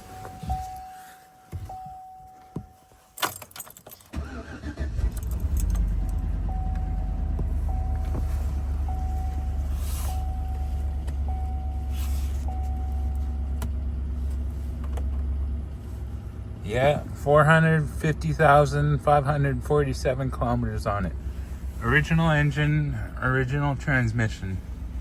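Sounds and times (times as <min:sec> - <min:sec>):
car engine starting and idling: 0:00.0 - 0:25.0
warning chime pinging: 0:00.1 - 0:03.2, 0:05.7 - 0:13.6.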